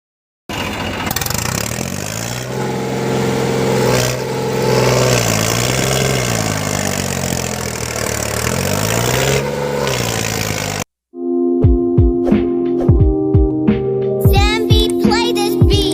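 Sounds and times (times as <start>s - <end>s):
tractor engine revving: 0.5s - 10.9s.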